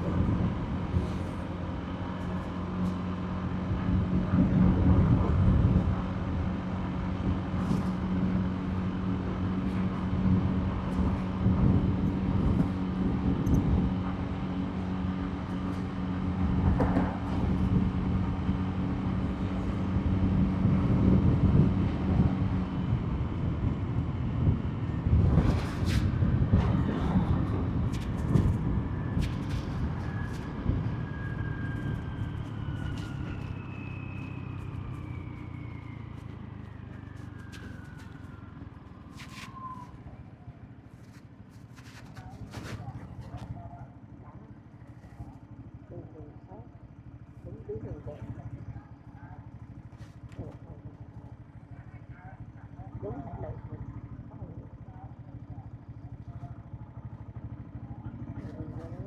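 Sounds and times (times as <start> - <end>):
rushing road noise: 0.0 - 43.2
motorbike engine cruising: 0.0 - 47.4.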